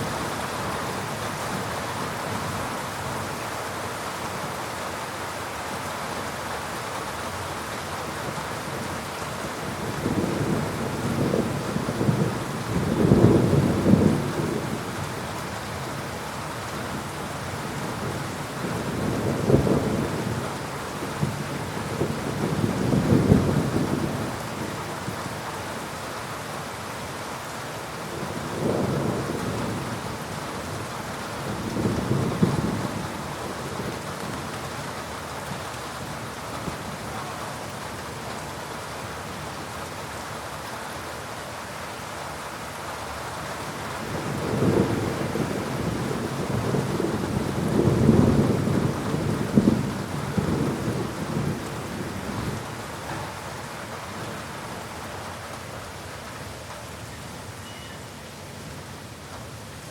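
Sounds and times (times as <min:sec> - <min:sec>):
heavy rain falling: 0:00.0 - 0:59.9
rolling thunder: 0:10.0 - 0:14.9, 0:31.5 - 0:34.0, 0:44.0 - 0:53.6.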